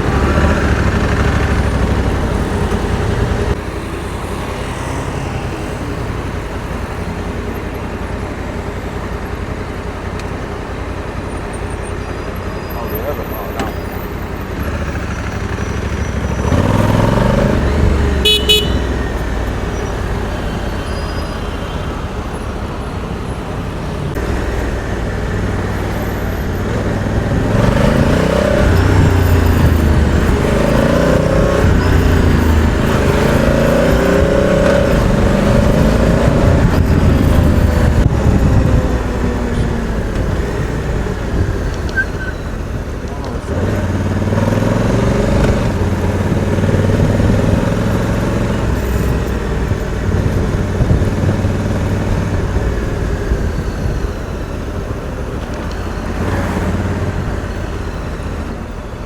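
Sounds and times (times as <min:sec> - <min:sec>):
vehicle engines revving: 0:00.0 - 0:59.0
vehicle horns tooting: 0:11.7 - 0:22.3.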